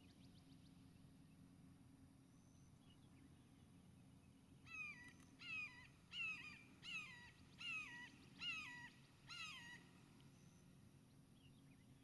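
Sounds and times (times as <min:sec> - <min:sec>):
bird calling: 0:04.6 - 0:10.6.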